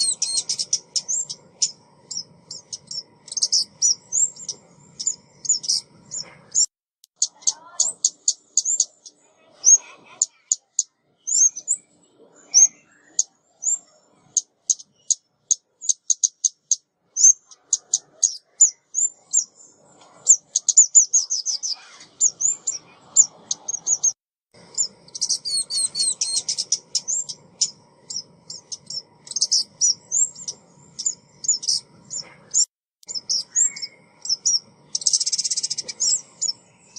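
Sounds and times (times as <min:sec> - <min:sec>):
bird chirping and twittering: 0:00.0 - 0:36.9.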